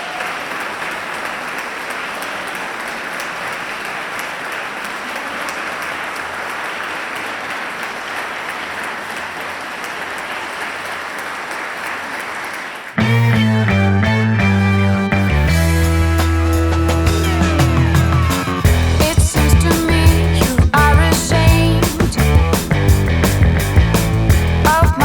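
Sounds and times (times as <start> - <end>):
crowd applauding: 0.0 - 25.0
rock music with guitar: 13.0 - 25.0.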